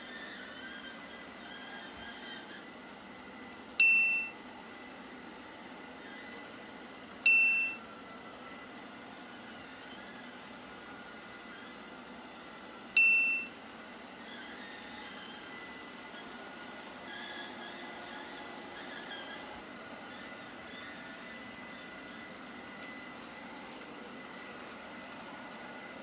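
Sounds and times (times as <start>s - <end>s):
faint steady hum: 3.7s - 4.4s, 7.2s - 7.9s, 12.9s - 13.6s
bright bell-like dings: 3.8s - 4.4s, 7.2s - 7.8s, 13.0s - 13.5s.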